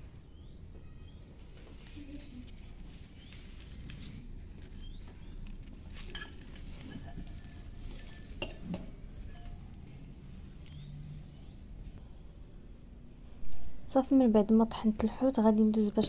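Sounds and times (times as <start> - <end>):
low steady background: 0.0 - 16.0
faint bird chirps: 0.1 - 6.2.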